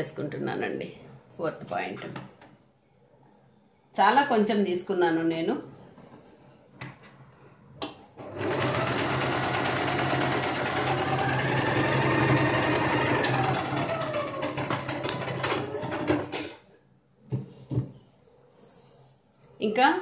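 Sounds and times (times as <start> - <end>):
sewing machine stitching: 8.2 - 16.6.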